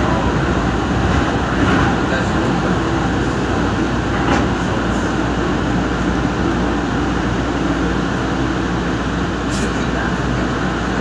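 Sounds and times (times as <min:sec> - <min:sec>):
wheels running on rail: 0:00.0 - 0:11.0.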